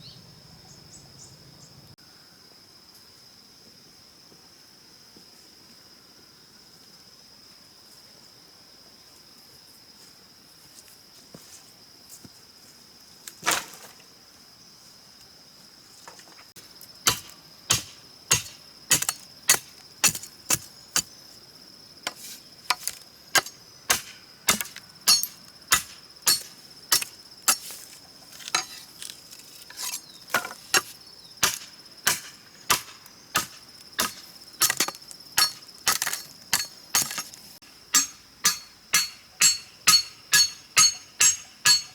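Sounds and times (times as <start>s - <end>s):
insect buzz: 0.0s - 41.9s
tool striking wood: 17.0s - 21.1s, 22.1s - 27.7s, 30.3s - 41.9s.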